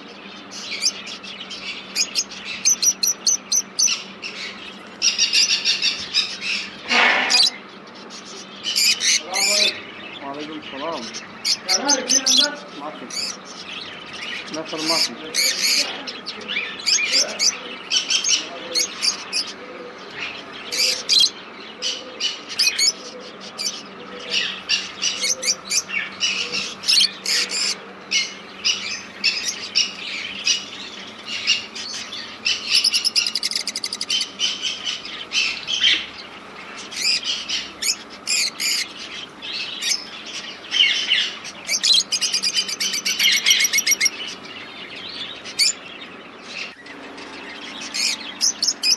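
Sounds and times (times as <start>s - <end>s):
caged birds chirping: 0.0s - 48.9s
rapid high bird trills: 0.0s - 48.9s.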